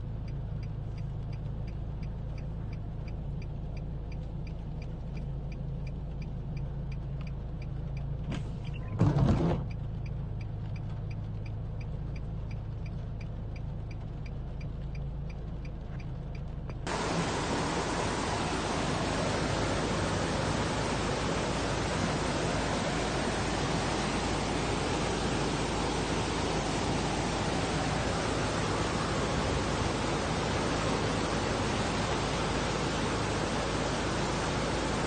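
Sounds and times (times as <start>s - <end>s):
faint ticking: 0.0s - 8.2s, 9.7s - 32.3s
low steady rumble: 0.0s - 35.0s
floodwater rushing: 16.9s - 35.0s.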